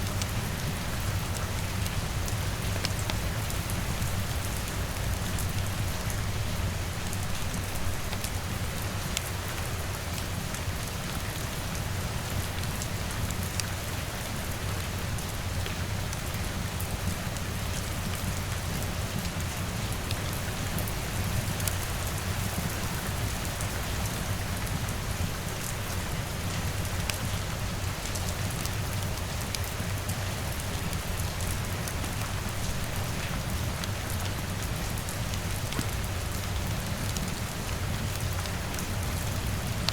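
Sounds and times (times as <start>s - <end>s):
rain pattering on a window: 0.0s - 39.9s.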